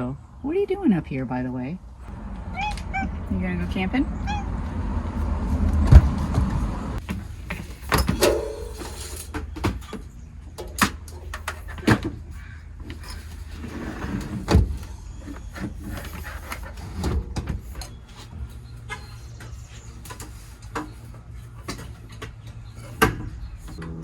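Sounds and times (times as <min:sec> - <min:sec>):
low rumble: 0:01.8 - 0:07.0
objects knocking and thumping: 0:05.6 - 0:10.0.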